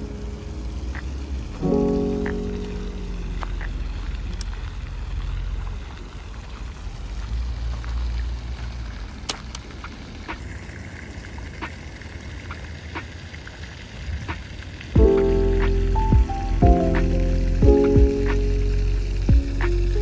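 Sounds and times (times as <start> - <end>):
low rumble: 0.0 - 5.8, 15.0 - 20.0
even hiss: 15.0 - 20.0.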